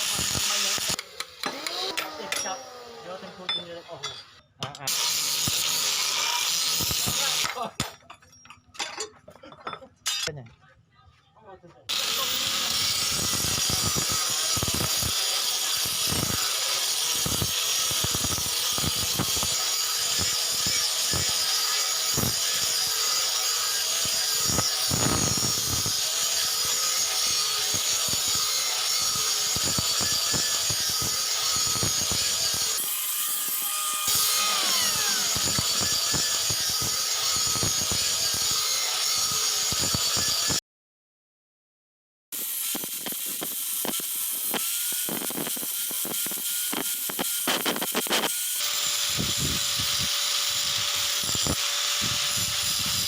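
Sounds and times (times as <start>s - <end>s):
steel blade rasping: 26.6s - 36.4s.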